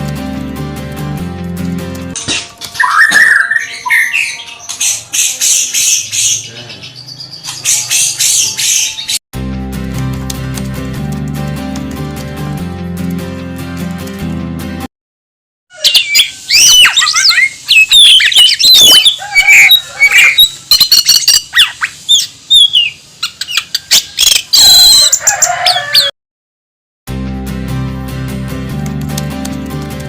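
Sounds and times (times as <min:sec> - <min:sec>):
songbird singing: 0:02.7 - 0:09.2, 0:15.7 - 0:26.1.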